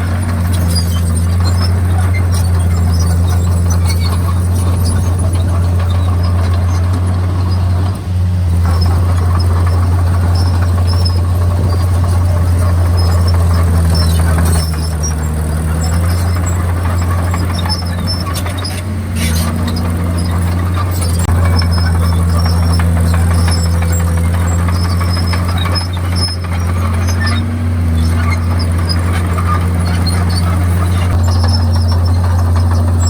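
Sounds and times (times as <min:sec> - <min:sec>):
bulldozer diesel engine drone: 0:00.0 - 0:33.0
running gear squeaks: 0:00.0 - 0:33.0.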